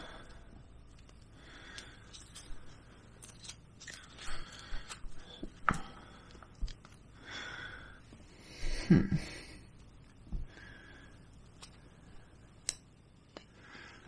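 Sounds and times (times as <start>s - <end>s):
small metal parts clicking: 0.9s - 5.0s
metal parts scraping: 2.0s - 5.0s.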